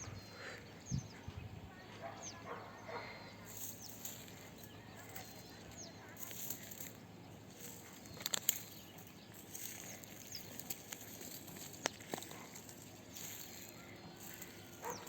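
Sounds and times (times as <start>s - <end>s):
outdoor background noise: 0.0s - 15.0s
small birds chirping: 0.0s - 15.0s.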